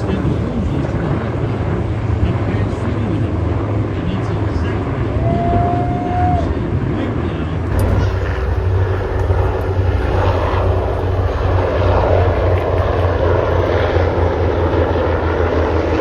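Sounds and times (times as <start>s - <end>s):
turboprop engines droning: 0.0s - 16.0s
rushing noise: 7.7s - 16.0s.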